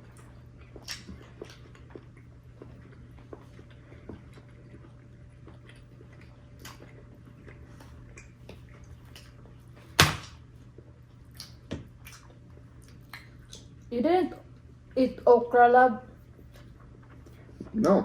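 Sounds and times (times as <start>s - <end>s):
steady low hum: 0.0s - 18.0s
eating clicks and smacks: 0.1s - 9.4s, 10.2s - 13.9s.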